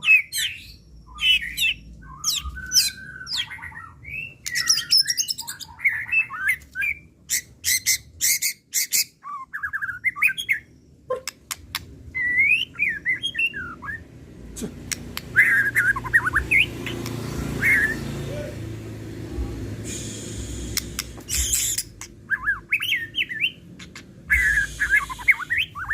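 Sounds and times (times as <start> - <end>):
bird whistling song: 0.0 - 14.1, 15.3 - 18.1, 19.9 - 25.9
sharp clicking bird notes: 11.1 - 12.0, 14.6 - 17.4, 20.4 - 22.2.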